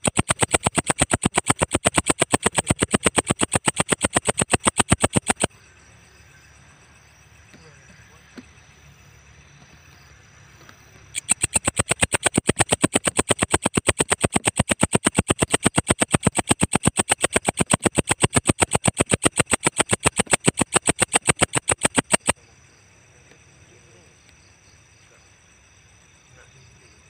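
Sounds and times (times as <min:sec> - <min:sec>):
katydid stridulating in rapid clicks: 0:00.0 - 0:05.5, 0:11.2 - 0:22.4.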